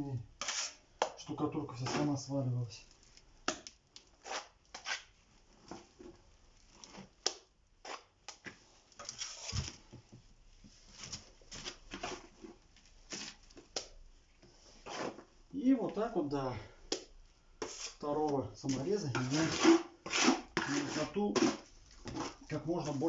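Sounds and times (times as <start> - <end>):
trowel scraping plaster: 0.4 - 0.8, 1.7 - 2.3, 4.2 - 5.1, 7.8 - 8.2, 9.0 - 9.6, 11.8 - 13.4, 14.8 - 15.3, 17.6 - 18.0, 18.7 - 23.0.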